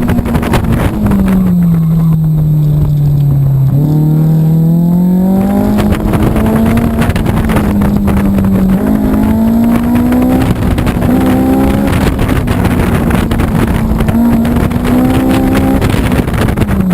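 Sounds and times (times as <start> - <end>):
car engine revving high: 0.0 - 16.9.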